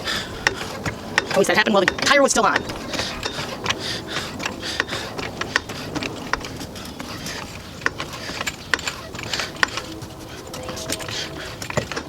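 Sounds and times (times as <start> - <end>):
hand tools clicking and clinking: 0.0 - 12.0.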